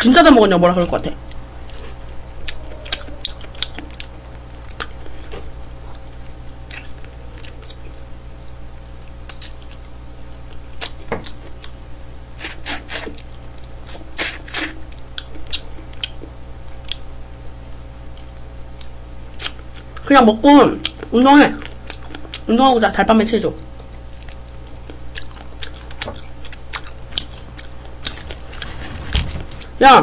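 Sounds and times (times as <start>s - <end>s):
low steady hum: 0.0s - 30.0s
chewing and lip smacks: 1.3s - 13.9s, 14.9s - 17.4s, 20.8s - 22.5s, 23.7s - 28.3s.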